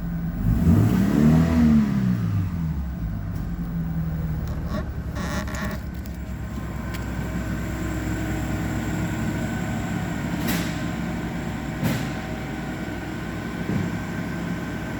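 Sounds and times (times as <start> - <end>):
car engine idling: 0.0 - 0.7, 2.1 - 14.9
engine clatter: 0.0 - 14.9.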